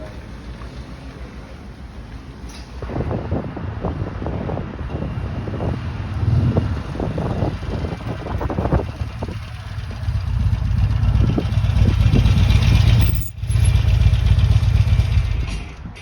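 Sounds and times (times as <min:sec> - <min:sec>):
wind rumble on microphone: 0:02.7 - 0:13.3
motorcycle engine running: 0:06.0 - 0:15.6.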